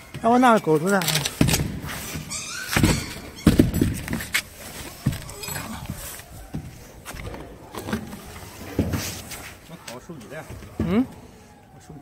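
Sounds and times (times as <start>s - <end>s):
objects knocking and thumping: 1.0s - 9.4s.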